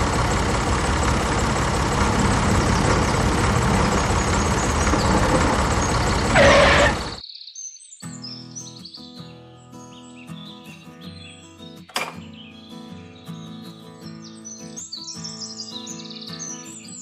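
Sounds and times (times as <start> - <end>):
engine running: 0.0 - 7.2
birds chirping: 1.4 - 17.0.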